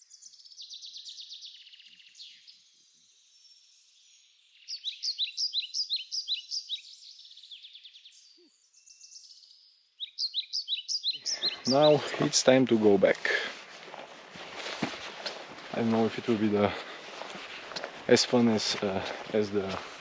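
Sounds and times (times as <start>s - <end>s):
songbird trill: 0.0s - 12.8s
rising bird chirping: 0.0s - 20.0s.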